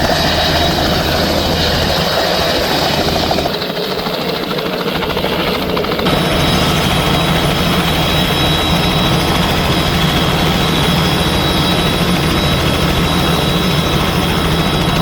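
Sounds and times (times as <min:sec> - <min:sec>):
helicopter engine whine: 0:00.0 - 0:15.0
helicopter rotor beat: 0:00.0 - 0:15.0.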